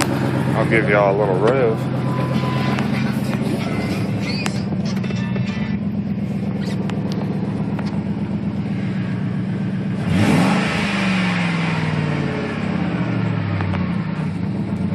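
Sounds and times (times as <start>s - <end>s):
truck engine idling and revving: 0.0s - 14.9s.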